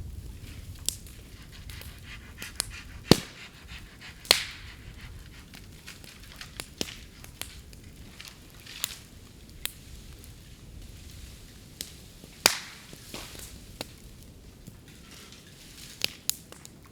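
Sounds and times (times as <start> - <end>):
bonfire burning: 0.0 - 16.9
bamboo cracking and popping: 3.1 - 3.6, 5.6 - 10.3, 11.7 - 16.9.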